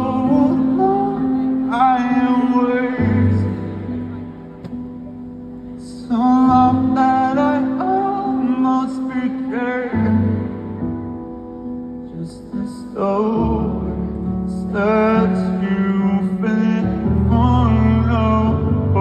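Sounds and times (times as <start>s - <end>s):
man singing: 0.0s - 4.9s, 5.7s - 11.2s, 12.0s - 19.0s
keyboard chords: 0.0s - 19.0s
bass: 13.2s - 19.0s.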